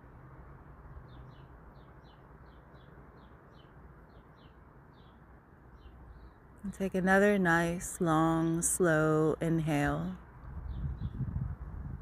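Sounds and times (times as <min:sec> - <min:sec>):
bird chirping: 0:01.0 - 0:06.9, 0:10.6 - 0:11.3.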